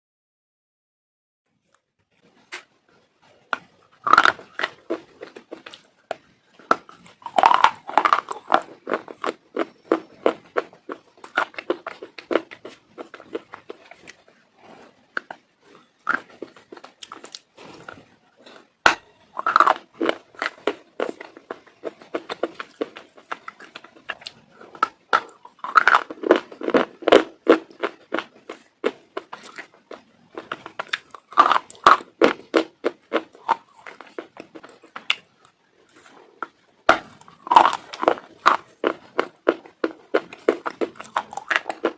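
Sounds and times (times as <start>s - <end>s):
crunchy food biting and chewing: 3.6s - 41.9s.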